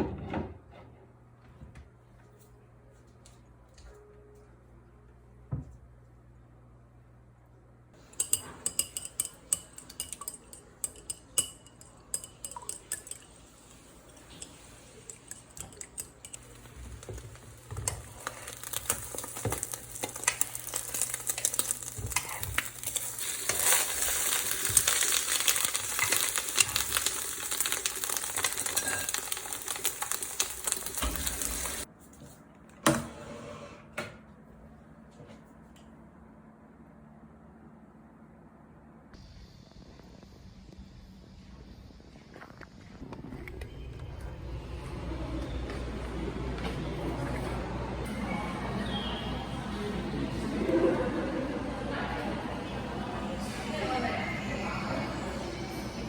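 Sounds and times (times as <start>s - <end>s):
utensils clinking against dishes: 8.0s - 31.8s
food sizzling in a frying pan: 16.4s - 31.9s.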